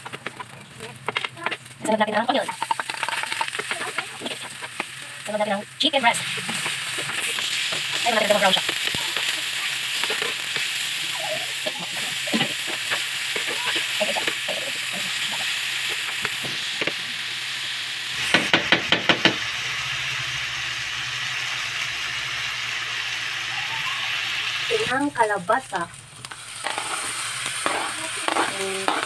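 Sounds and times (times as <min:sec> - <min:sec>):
spatula scraping pan: 0:00.0 - 0:05.5, 0:06.1 - 0:16.5, 0:26.6 - 0:29.0
food sizzling in frying pan: 0:00.0 - 0:29.0.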